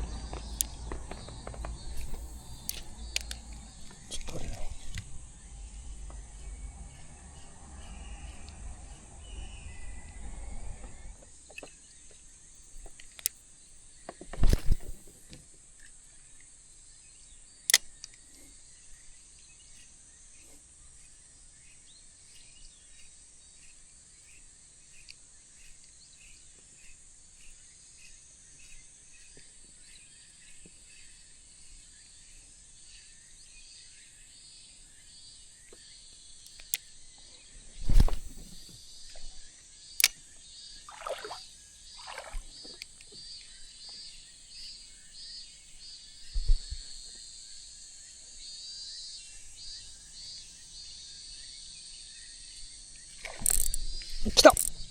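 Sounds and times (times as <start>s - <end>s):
insects chirping: 0.0s - 20.4s, 30.8s - 54.9s
sharp click: 0.4s - 5.1s, 14.3s - 15.1s, 37.8s - 38.8s, 53.4s - 54.8s
low rustling: 37.7s - 38.8s.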